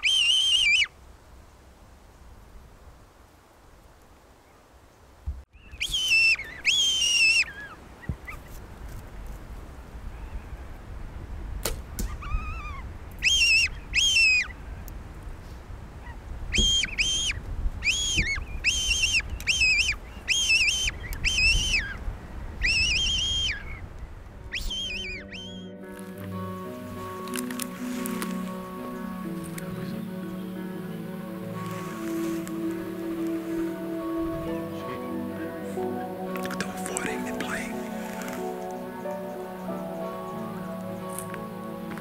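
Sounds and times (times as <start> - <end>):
bird calling: 0.0 - 1.0, 5.5 - 8.6, 12.0 - 14.8, 16.0 - 42.0.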